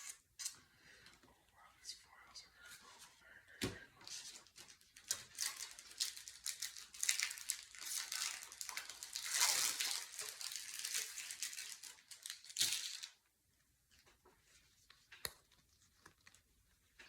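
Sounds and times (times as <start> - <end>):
plastic wrapper crinkling: 4.1 - 13.2.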